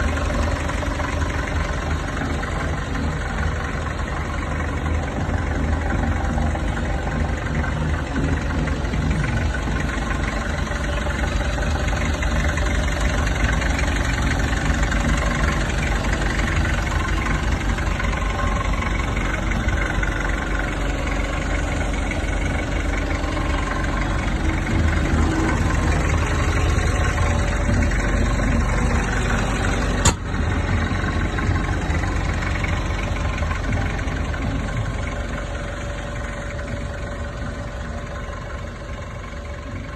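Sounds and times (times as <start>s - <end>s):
diesel engine idling: 0.0s - 39.9s
sharp click: 30.0s - 30.3s.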